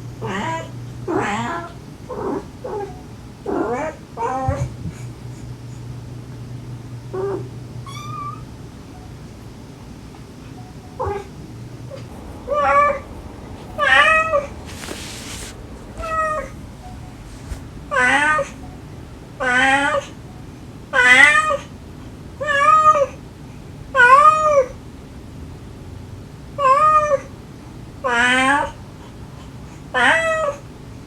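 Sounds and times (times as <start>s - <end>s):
cat meowing: 7.2s - 8.5s
short hiss-like noise: 11.9s - 20.3s.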